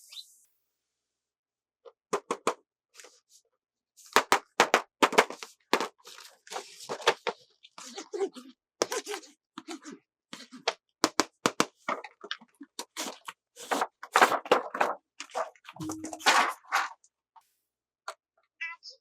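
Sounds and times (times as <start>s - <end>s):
plastic toy packaging rustling: 13.1s - 16.9s.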